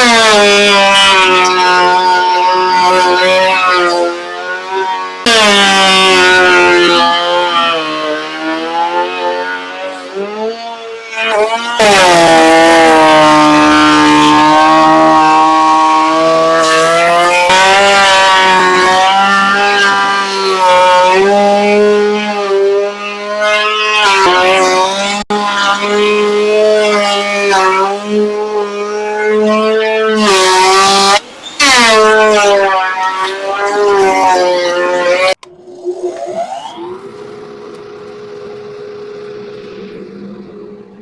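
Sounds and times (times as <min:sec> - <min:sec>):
electric sander on wood: 0:00.0 - 0:10.5, 0:11.2 - 0:31.3.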